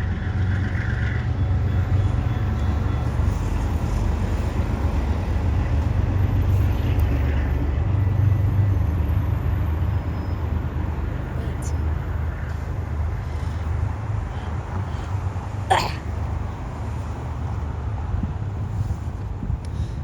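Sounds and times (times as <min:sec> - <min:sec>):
passenger train rumbling past: 0:00.0 - 0:13.2.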